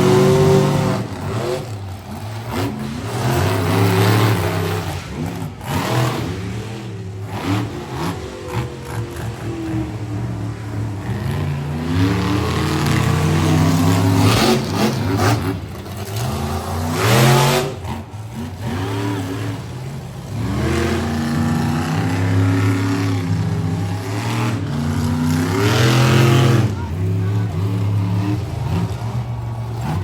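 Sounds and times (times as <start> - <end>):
truck engines revving: 0.0 - 30.0.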